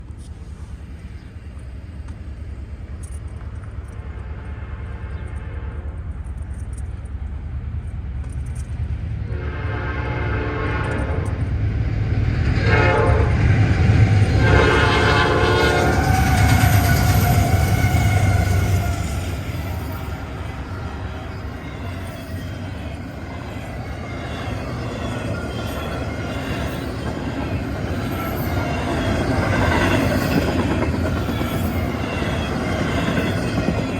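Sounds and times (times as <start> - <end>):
diesel locomotives rumbling: 0.0 - 33.9
train air horn blasts: 3.9 - 6.1, 9.3 - 11.4, 12.5 - 21.1.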